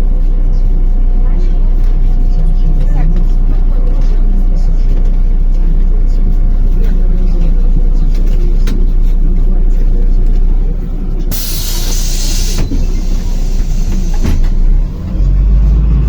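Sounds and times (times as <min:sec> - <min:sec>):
bus engine rumble: 0:00.0 - 0:16.0
compressed air hiss: 0:11.3 - 0:14.4.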